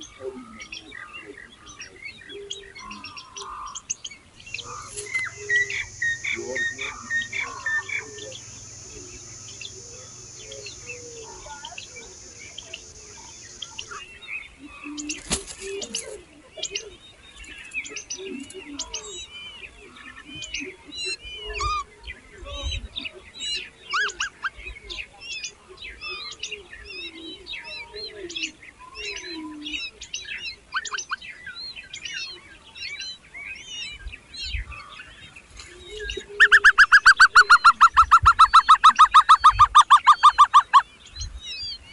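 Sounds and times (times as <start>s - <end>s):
nestling birds chirping: 0.0s - 20.7s, 23.3s - 41.9s
loud fast repeated bird call: 4.4s - 13.9s.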